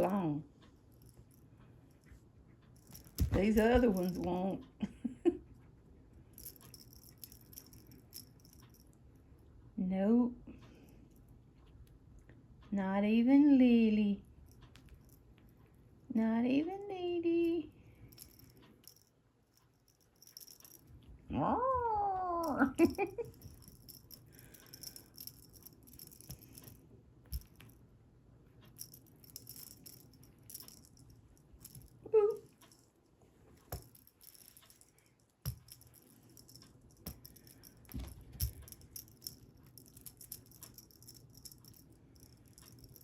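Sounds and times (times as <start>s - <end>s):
cat toy jingling and rattling: 2.8s - 4.5s, 6.4s - 8.8s, 19.8s - 21.0s, 22.4s - 27.7s, 28.8s - 32.8s, 33.7s - 43.0s.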